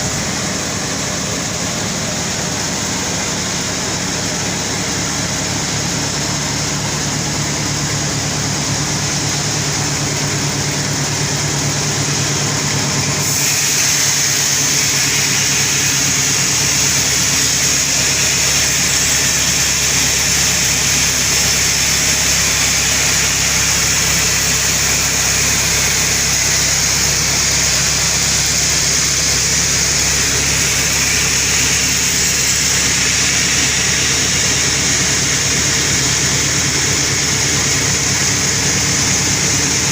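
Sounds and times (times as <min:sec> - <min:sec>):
saw machine hum: 0:00.0 - 0:39.9
blade cutting log hiss: 0:13.1 - 0:39.9.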